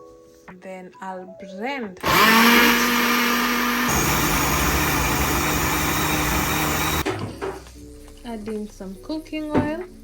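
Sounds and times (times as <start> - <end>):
electric blender running: 2.0 - 7.0.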